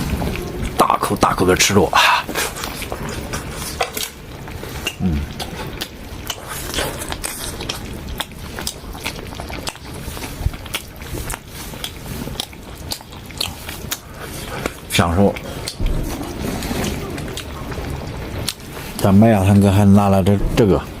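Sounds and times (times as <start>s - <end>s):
wet mouth smacking clicks: 4.8s - 7.8s
person chewing and biting: 4.8s - 14.8s.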